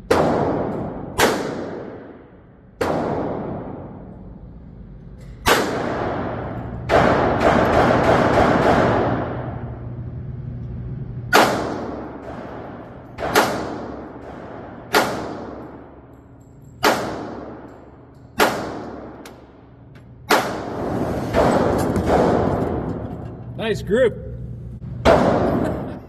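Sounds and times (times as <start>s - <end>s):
gunshots with ringing tail: 25.0s - 26.0s.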